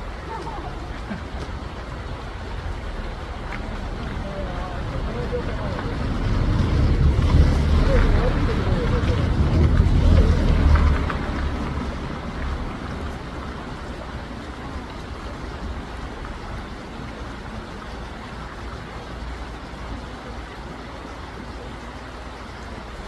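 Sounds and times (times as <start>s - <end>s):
stream rushing: 0.0s - 23.0s
low rumble: 2.6s - 13.9s.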